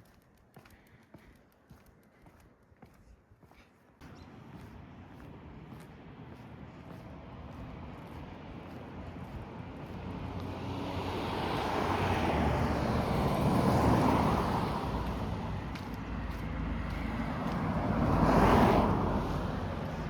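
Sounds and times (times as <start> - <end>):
highway vehicles passing: 4.0 - 20.0.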